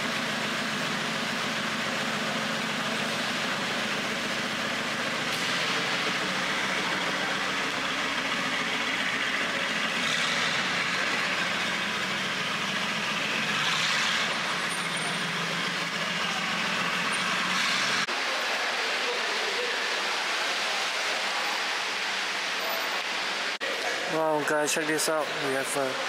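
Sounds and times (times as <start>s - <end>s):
car engine idling: 0.0s - 18.3s.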